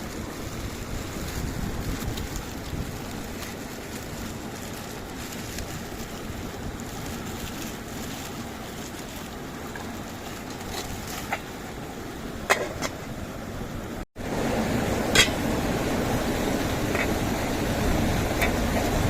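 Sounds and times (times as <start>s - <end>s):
waterfall rushing: 14.2s - 19.0s.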